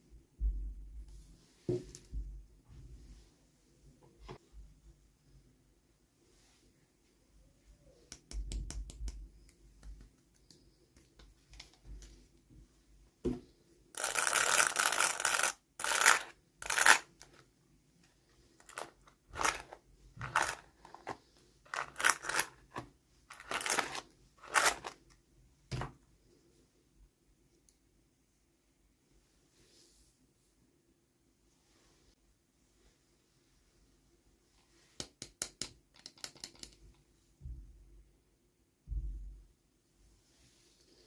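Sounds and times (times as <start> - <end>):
packaging tearing rustle: 14.0 - 17.2, 18.6 - 25.0
packaging clicks: 18.6 - 22.6, 23.3 - 25.0.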